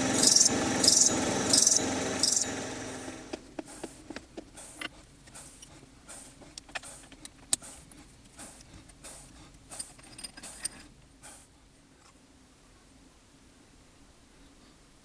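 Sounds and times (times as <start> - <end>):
metal parts clicking and clinking: 9.8 - 11.0.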